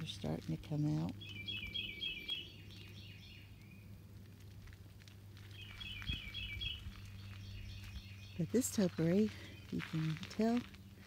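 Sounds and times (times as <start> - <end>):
songbird singing high notes: 1.2 - 3.8.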